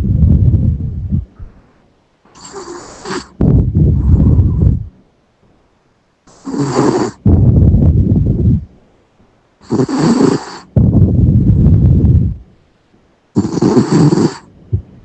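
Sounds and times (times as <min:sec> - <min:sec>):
dog snoring: 0:02.3 - 0:04.9, 0:06.3 - 0:08.6, 0:09.6 - 0:12.4, 0:13.4 - 0:14.5.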